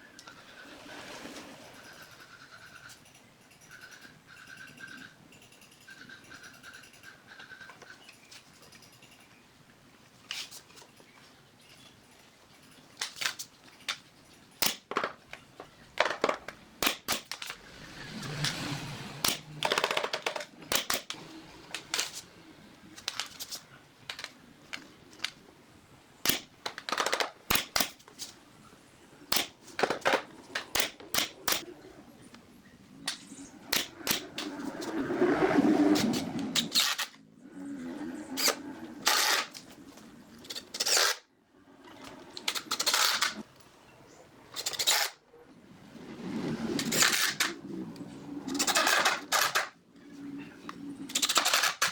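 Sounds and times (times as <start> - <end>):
rough scraping: 33.0 - 41.3, 45.8 - 51.9.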